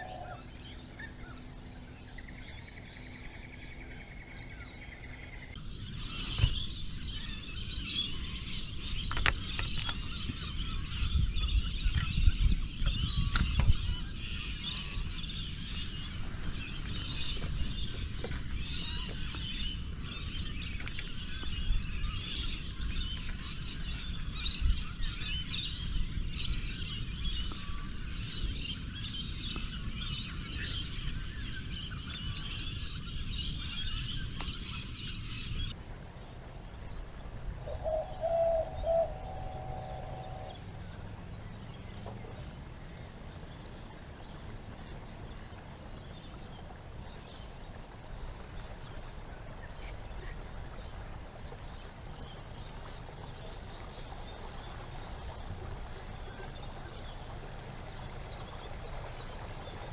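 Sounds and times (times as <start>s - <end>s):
birds chirping in chorus: 0.0s - 27.6s, 30.3s - 48.8s.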